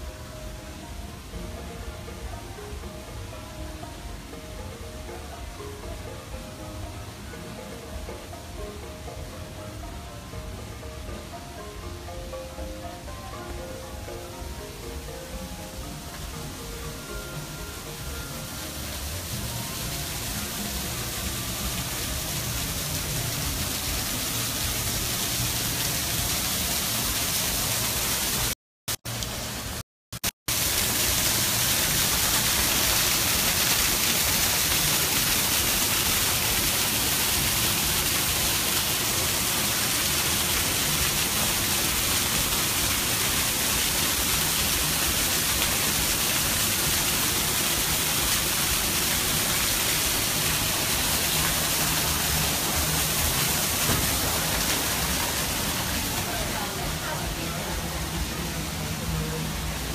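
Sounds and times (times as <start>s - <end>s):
waterfall rushing: 0.0s - 29.8s, 30.5s - 59.9s.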